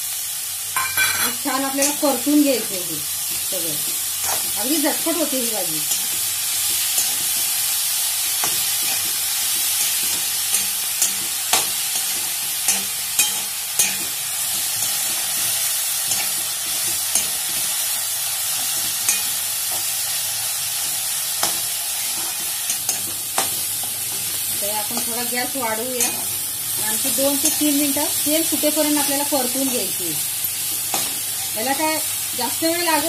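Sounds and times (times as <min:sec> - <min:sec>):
shrimp sizzling in oil: 0:00.0 - 0:33.0.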